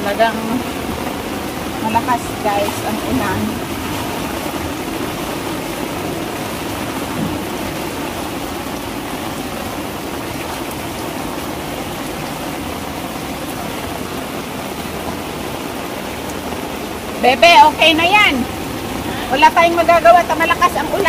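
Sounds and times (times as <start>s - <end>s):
heavy rain on a tiled roof: 0.0s - 21.0s.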